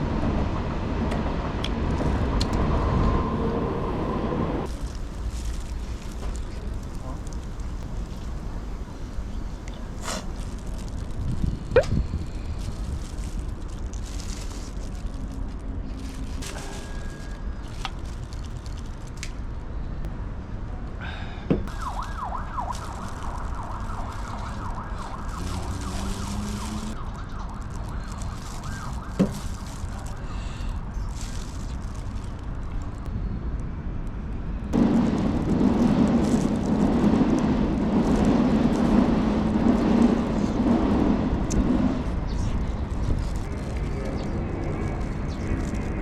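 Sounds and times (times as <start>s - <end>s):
traffic-like rumble: 0.0s - 46.0s
steady engine-like drone: 33.0s - 46.0s.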